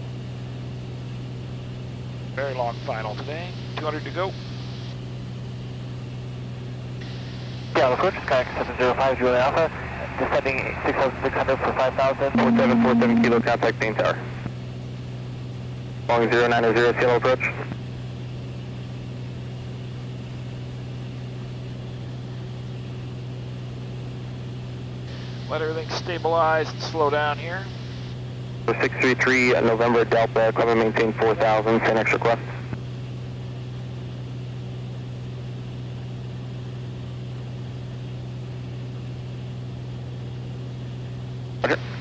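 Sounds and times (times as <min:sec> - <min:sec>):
aircraft propeller engine droning: 0:00.0 - 0:42.0.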